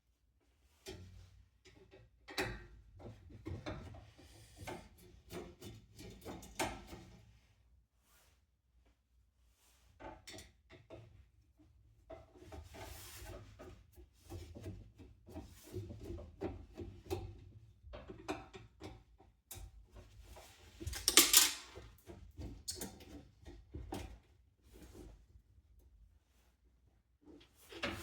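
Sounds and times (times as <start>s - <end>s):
scrape or rattle: 20.7s - 21.8s
fan parts clicking and knocking: 20.8s - 21.9s.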